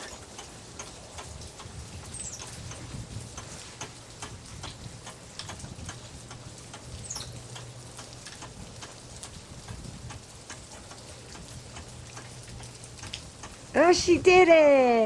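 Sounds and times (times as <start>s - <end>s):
rain drops ticking on hard surfaces: 0.0s - 15.0s
high falling chirp: 7.0s - 7.4s.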